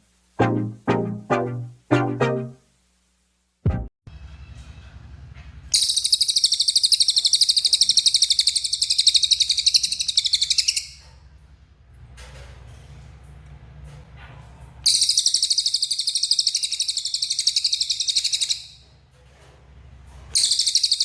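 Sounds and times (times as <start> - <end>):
bird singing high trill: 5.8 - 11.0, 14.9 - 18.7, 20.4 - 21.0
faint bird chirps: 5.8 - 11.1, 14.9 - 18.8, 20.4 - 21.0.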